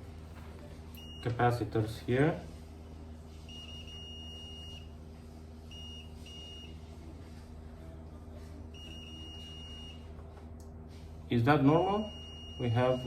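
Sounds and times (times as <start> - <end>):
low mains hum: 0.0 - 13.0
multimeter continuity beeps: 1.0 - 1.6, 3.5 - 4.9, 5.7 - 6.8, 8.7 - 10.1, 11.8 - 13.0.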